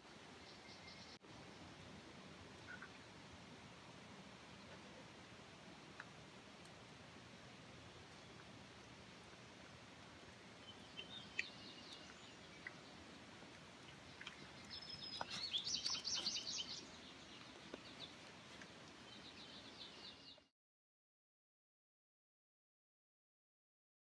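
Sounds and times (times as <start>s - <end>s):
steady outdoor background hiss: 0.0s - 20.5s
small songbirds chirping: 0.3s - 2.0s, 7.6s - 20.5s.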